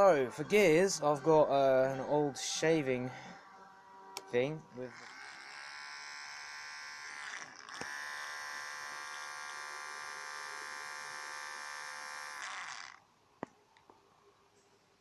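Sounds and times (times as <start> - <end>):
small electric motor buzzing: 4.8 - 13.0.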